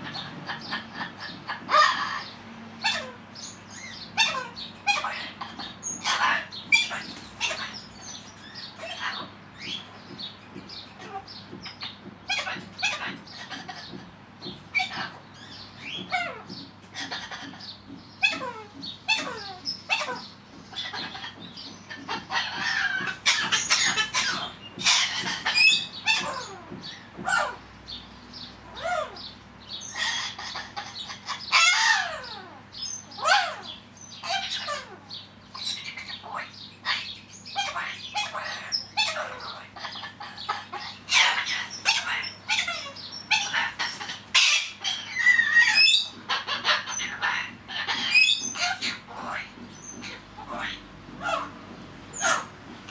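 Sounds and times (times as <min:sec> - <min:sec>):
parrot chattering calls: 0:00.0 - 0:52.9
parrot screeches: 0:29.9 - 0:32.6, 0:40.2 - 0:51.5.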